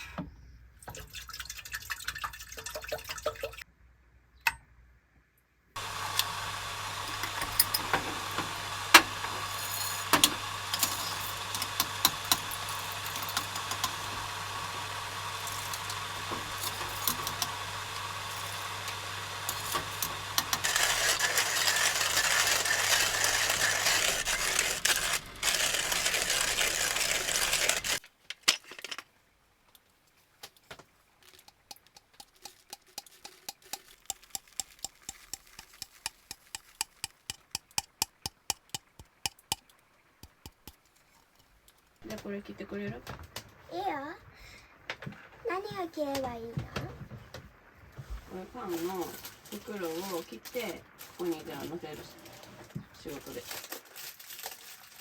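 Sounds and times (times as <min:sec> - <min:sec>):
rain hissing: 0:05.8 - 0:28.0.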